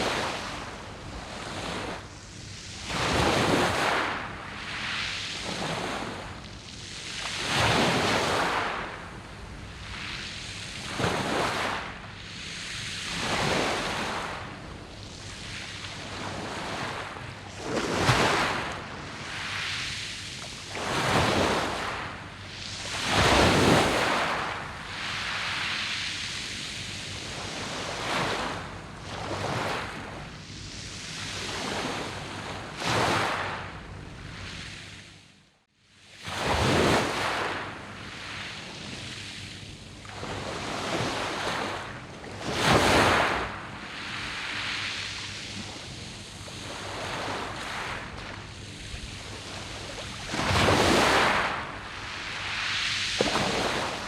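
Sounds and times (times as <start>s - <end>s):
waves breaking on pebbles: 15.3s - 30.0s, 40.2s - 54.0s.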